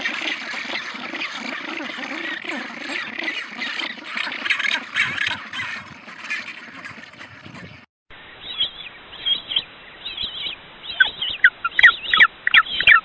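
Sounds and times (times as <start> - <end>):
penguins calling: 0.0 - 7.8.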